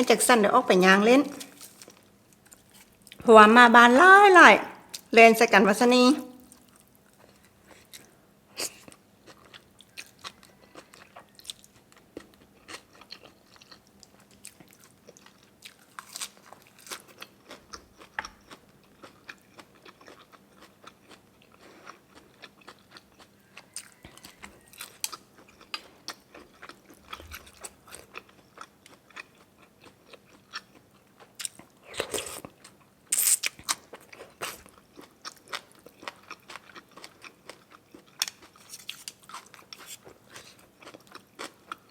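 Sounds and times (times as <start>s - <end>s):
person chewing and crunching food: 6.4s - 41.9s.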